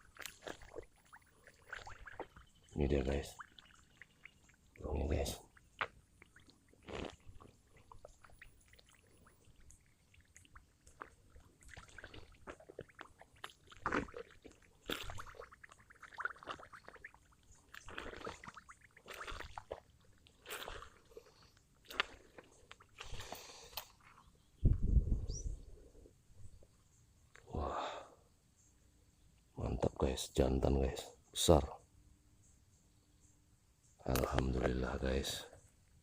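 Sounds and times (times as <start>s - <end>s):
footsteps wading through mud: 0.0s - 2.6s, 11.1s - 24.3s
water and mud sloshing: 0.0s - 24.4s.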